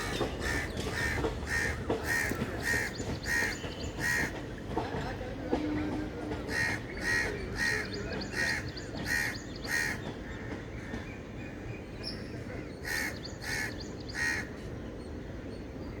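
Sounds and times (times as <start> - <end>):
bird calling: 0.0 - 4.3.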